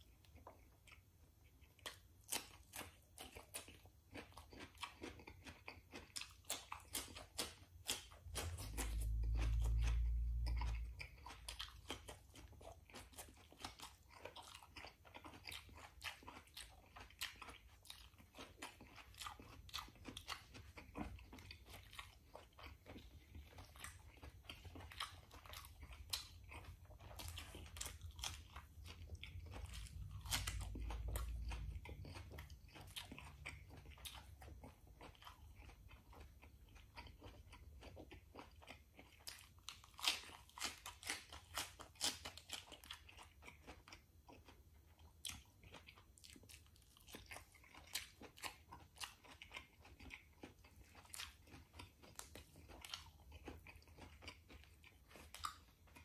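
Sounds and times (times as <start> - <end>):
crunching and chewing food: 0.0 - 56.0
low rumble: 8.3 - 11.2.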